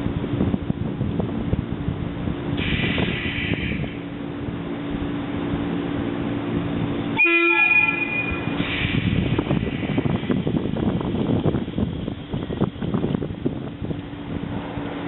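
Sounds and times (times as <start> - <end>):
train rumbling by: 0.0 - 15.0
wind noise on microphone: 0.0 - 15.0
train horn toot: 7.1 - 8.6.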